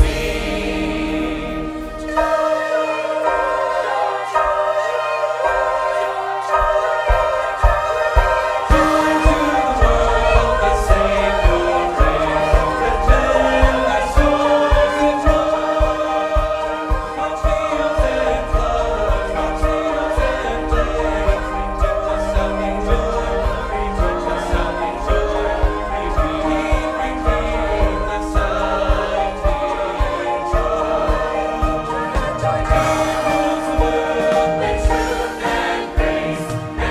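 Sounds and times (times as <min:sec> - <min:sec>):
choir singing: 0:00.0 - 0:36.9
instrumental backing with beat: 0:05.5 - 0:36.9.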